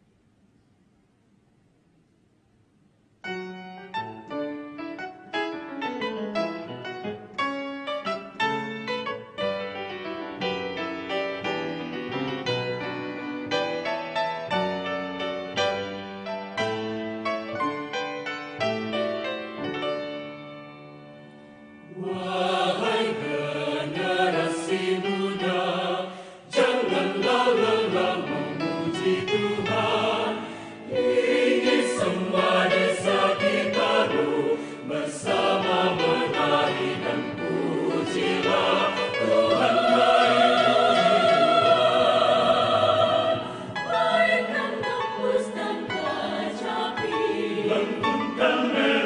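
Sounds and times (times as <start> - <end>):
choir singing in harmony: 21.8 - 49.0.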